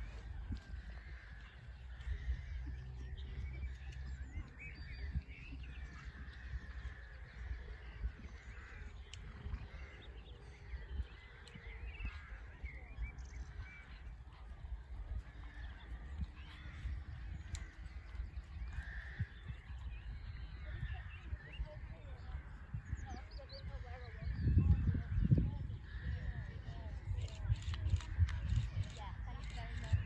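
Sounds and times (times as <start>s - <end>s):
small birds singing and chirping: 0.0s - 30.0s
wind rumble on microphone: 0.0s - 30.0s.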